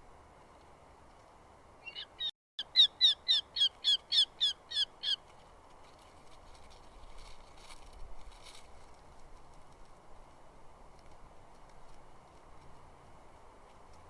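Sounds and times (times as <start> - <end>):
bird giving sharp repeated calls: 1.8 - 5.2.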